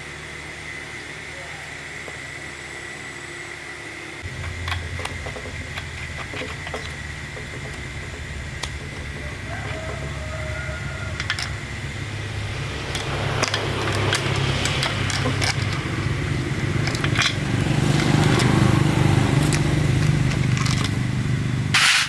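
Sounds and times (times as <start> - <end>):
motor humming: 0.0 - 22.0
clicks and rattles: 4.2 - 11.8, 12.7 - 21.2.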